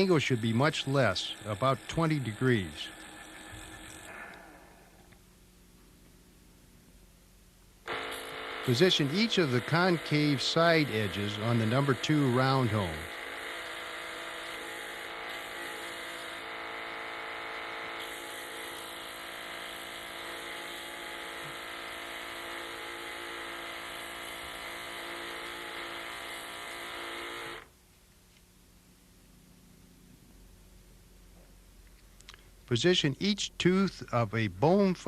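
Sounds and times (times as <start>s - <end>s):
small electric motor humming: 0.0s - 5.2s, 7.9s - 27.7s.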